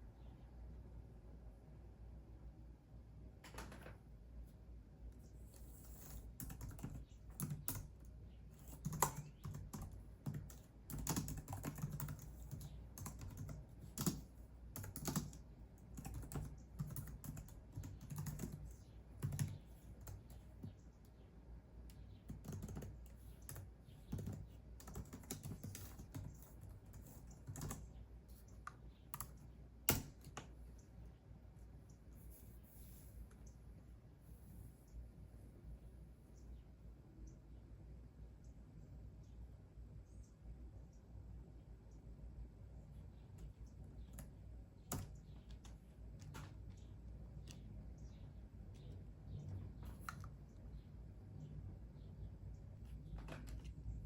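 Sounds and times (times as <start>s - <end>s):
keyboard typing: 5.4s - 21.2s, 21.9s - 30.9s, 43.4s - 50.6s.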